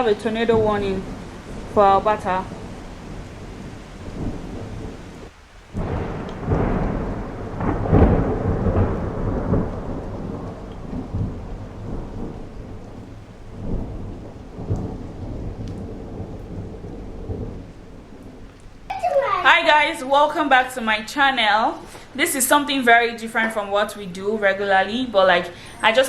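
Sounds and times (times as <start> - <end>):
low rumbling thunder: 0.0 - 18.9
steady rain: 0.0 - 26.0.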